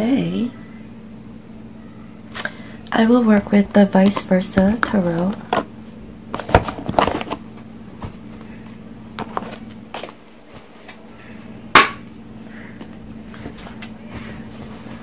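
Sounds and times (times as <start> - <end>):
cards clicking and rustling: 6.3 - 11.1.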